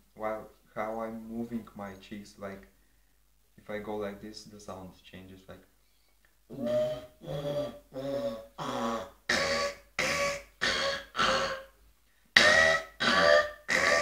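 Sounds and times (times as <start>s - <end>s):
beatboxer vocal buzzing pulses: 6.5s - 11.7s, 12.4s - 14.0s.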